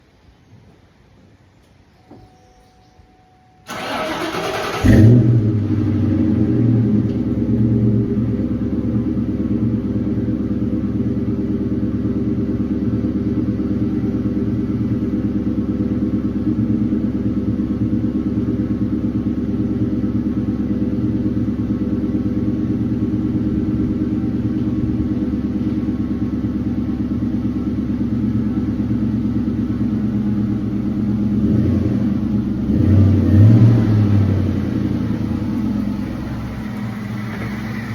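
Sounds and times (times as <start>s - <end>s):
car engine starting and idling: 3.6s - 37.9s
starter motor cranking: 3.7s - 5.2s.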